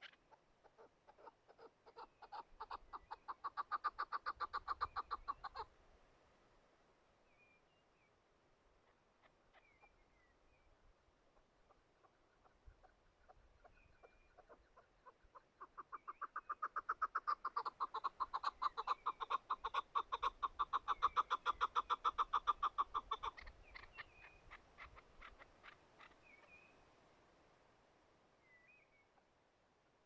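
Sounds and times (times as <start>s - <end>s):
partridge clucking call: 0.0s - 5.7s, 14.0s - 26.2s.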